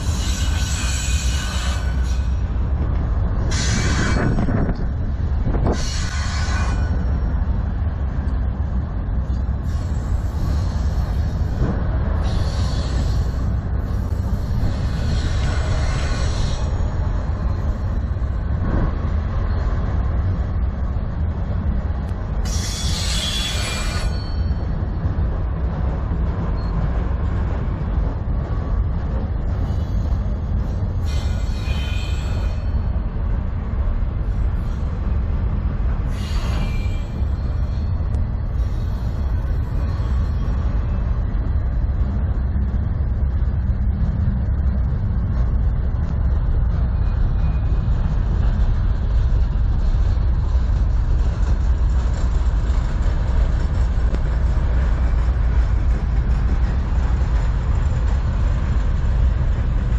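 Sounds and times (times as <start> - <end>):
freight cars rumbling and clattering: 0.0 - 59.9
high-pitched wheel squeals: 22.4 - 24.8, 31.0 - 32.8, 36.1 - 38.0.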